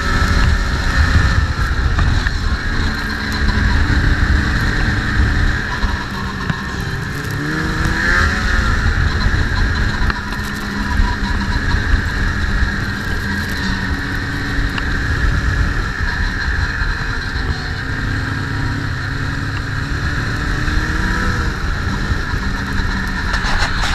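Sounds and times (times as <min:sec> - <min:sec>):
snowmobile engine revving: 0:00.0 - 0:23.9.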